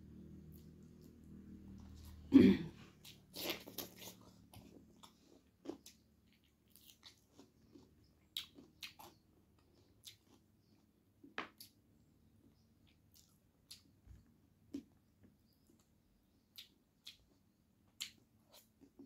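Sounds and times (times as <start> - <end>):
person chewing with mouth clicks: 3.0 - 10.9, 12.8 - 14.0, 15.6 - 19.0.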